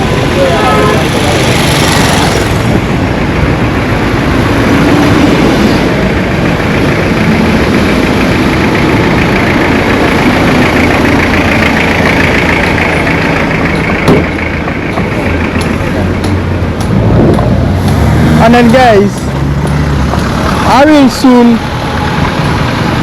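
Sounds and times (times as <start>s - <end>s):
vehicle engine running: 0.0s - 23.0s
sharp knock: 14.0s - 14.3s.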